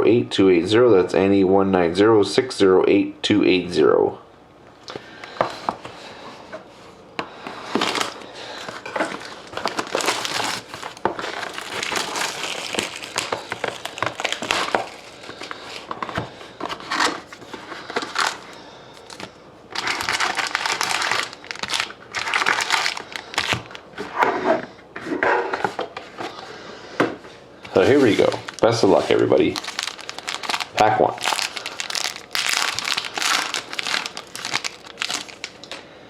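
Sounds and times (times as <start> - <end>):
plastic wrapping crinkling and tearing: 7.6 - 23.9, 27.7 - 35.8.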